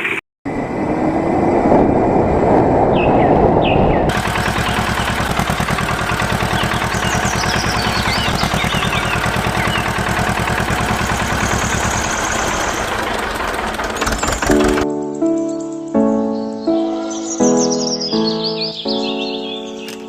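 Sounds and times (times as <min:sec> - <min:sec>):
birds chirping faintly: 0:03.0 - 0:20.0
tractor diesel engine idling: 0:04.1 - 0:14.8.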